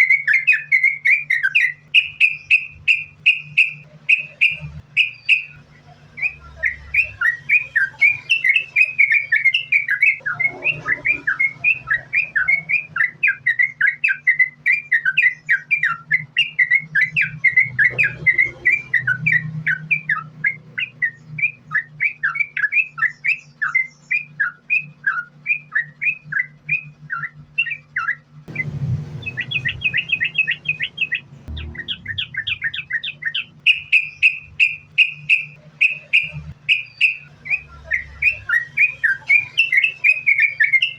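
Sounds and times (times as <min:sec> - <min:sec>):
bird chirping: 0:00.0 - 0:40.9
low hum: 0:26.0 - 0:40.8.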